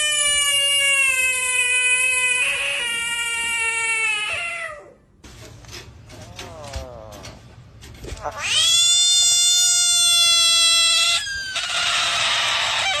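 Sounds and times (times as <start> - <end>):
frog screaming: 0.0 - 5.0, 8.2 - 13.0.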